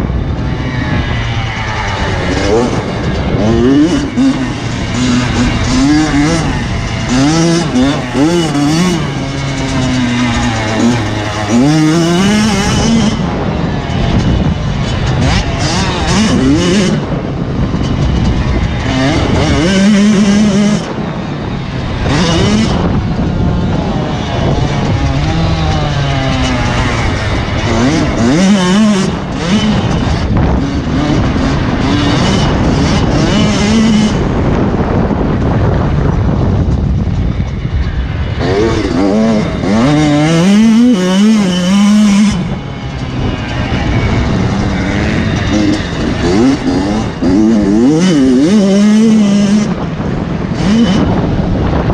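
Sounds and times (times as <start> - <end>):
motocross bike engines revving: 0.0 - 51.9.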